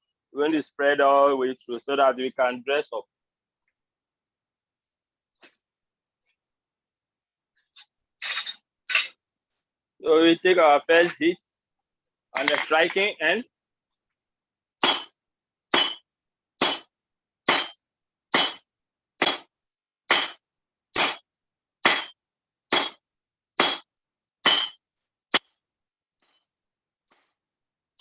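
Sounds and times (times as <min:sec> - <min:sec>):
hammer striking hot steel on anvil: 0:14.8 - 0:16.9, 0:17.5 - 0:18.6, 0:19.2 - 0:19.5, 0:20.1 - 0:20.4, 0:21.0 - 0:23.0, 0:23.6 - 0:24.8.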